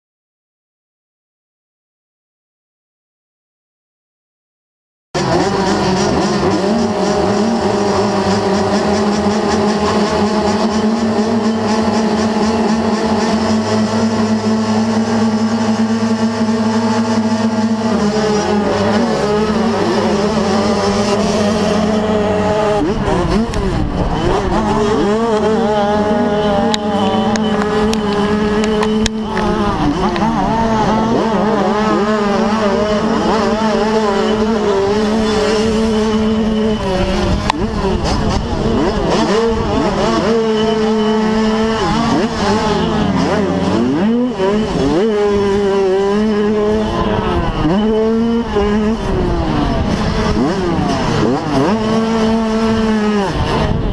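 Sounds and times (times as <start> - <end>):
motocross bike engines revving: 5.2 - 53.9.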